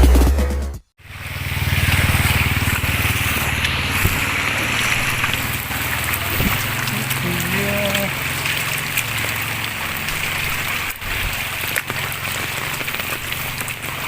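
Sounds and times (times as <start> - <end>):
electronic music: 0.0 - 0.9
steady rain: 1.0 - 14.0.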